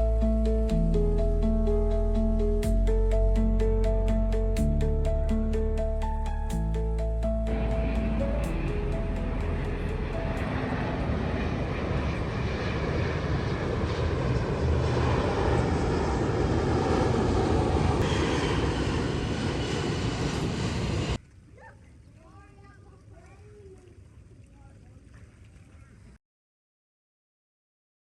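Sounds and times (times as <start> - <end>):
aircraft engine rushing: 0.0 - 21.2.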